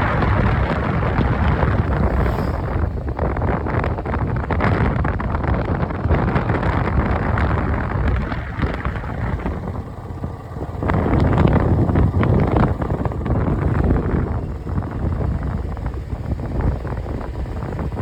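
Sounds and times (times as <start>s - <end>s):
motorcycle engine: 0.0s - 18.0s
road noise: 0.0s - 18.0s
wind buffeting microphone: 0.0s - 18.0s.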